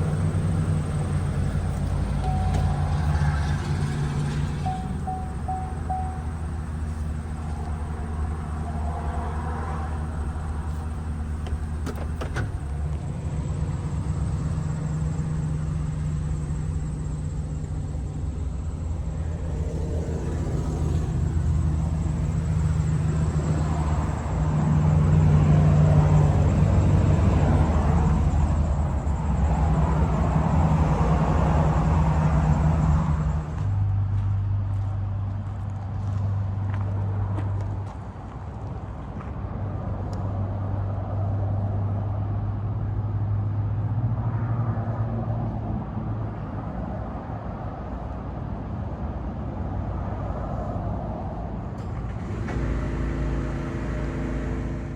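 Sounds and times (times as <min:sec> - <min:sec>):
pickup engine running: 0:00.0 - 0:36.8, 0:51.8 - 0:54.9.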